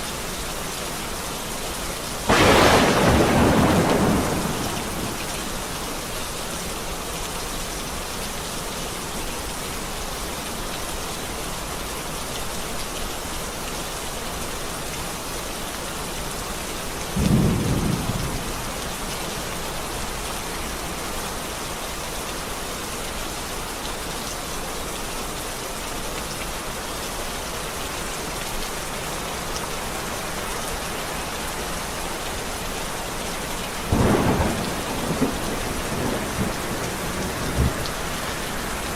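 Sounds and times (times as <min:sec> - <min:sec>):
steady rain: 0:00.0 - 0:38.9
low rumble of thunder: 0:02.3 - 0:05.8, 0:17.2 - 0:19.0, 0:33.9 - 0:38.9.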